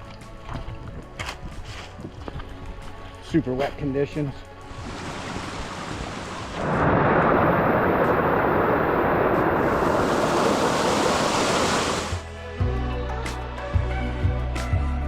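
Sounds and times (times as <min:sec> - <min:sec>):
rushing water: 0:04.5 - 0:12.3.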